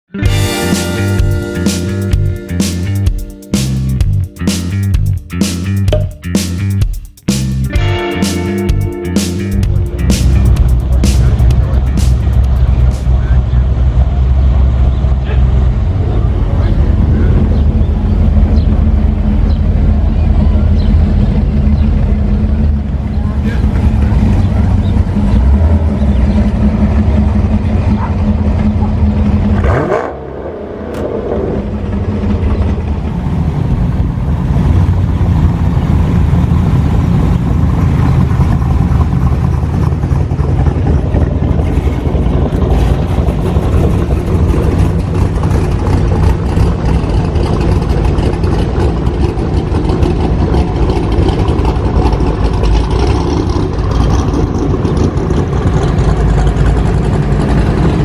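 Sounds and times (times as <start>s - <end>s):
engine revving: 0.2s - 33.1s
car engines running: 0.2s - 58.0s.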